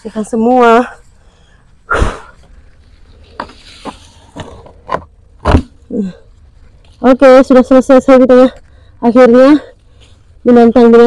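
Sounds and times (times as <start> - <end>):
scraping rustle: 2.3 - 5.0
knocks and thumps: 3.3 - 5.8.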